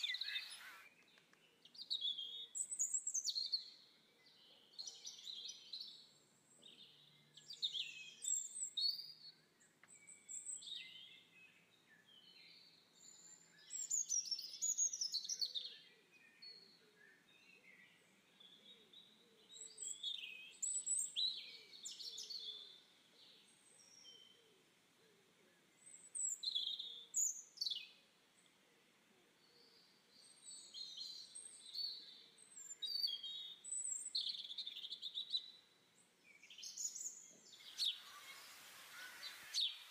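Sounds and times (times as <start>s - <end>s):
birds chirping and singing: 0.0s - 9.1s, 36.3s - 39.9s.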